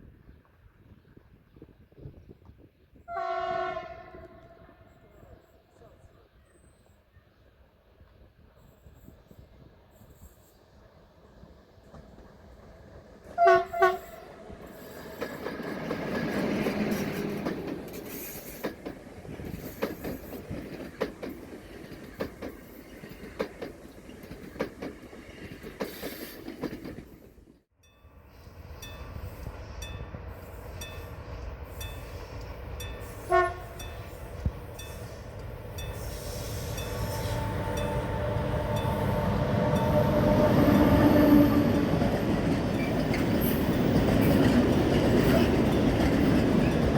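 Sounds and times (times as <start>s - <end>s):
train horn blasts: 3.1s - 5.4s, 13.4s - 14.6s, 33.0s - 34.2s, 35.9s - 42.1s
train approaching: 3.1s - 46.9s
train wheels clicking on rail joints: 11.4s - 27.6s, 28.6s - 46.9s.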